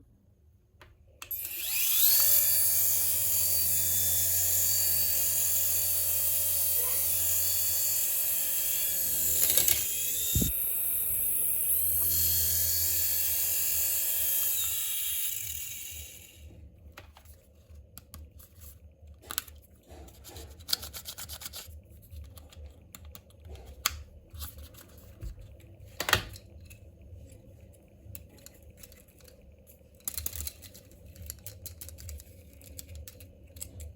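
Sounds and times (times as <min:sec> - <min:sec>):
toy helicopter motor whine: 0:01.3 - 0:16.5.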